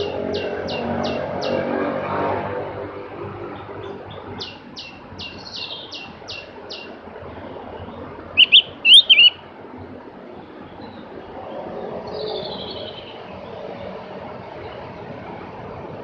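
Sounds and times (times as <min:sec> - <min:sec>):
bird singing high notes: 0:08.4 - 0:09.4.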